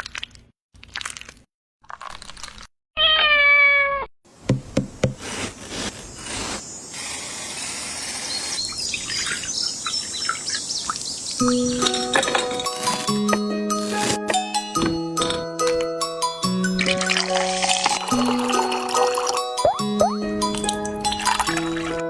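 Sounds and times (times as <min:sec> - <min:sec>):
cat meowing: 0:03.0 - 0:04.1.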